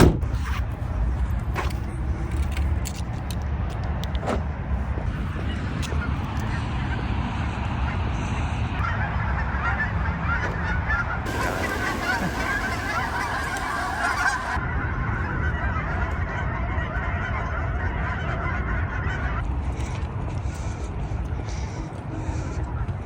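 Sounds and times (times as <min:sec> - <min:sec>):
geese honking: 0:08.8 - 0:14.6.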